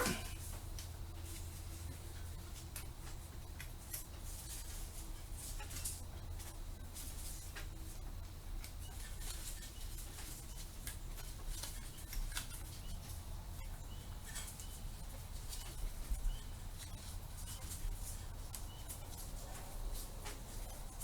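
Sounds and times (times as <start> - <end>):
hand tools tapping metal: 0.0 - 0.9
low steady hum: 0.0 - 21.0.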